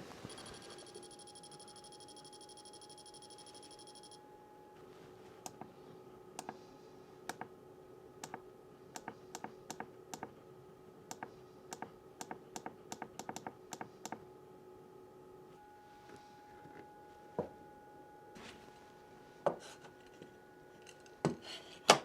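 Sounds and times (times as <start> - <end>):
steady hum: 0.0 - 21.3
sharp clicks: 9.0 - 10.3.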